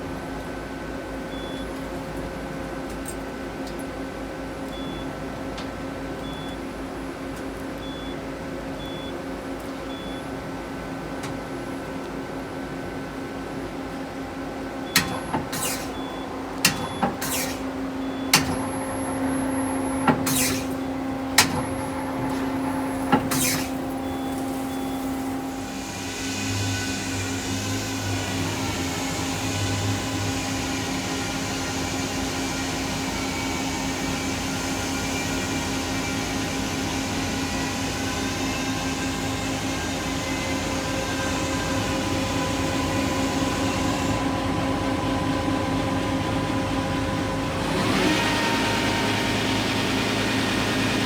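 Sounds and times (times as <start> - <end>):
lathe machine hum: 14.4 - 51.0
mechanical clacks and knocks: 15.0 - 25.7
hiss: 21.4 - 36.6.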